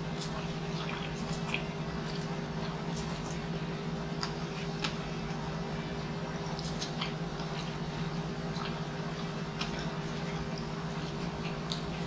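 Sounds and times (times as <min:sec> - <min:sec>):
chewing food: 0:00.0 - 0:12.0
steady low hum: 0:00.0 - 0:12.0
wet mouth clicks and smacks: 0:06.4 - 0:07.7, 0:11.1 - 0:12.0.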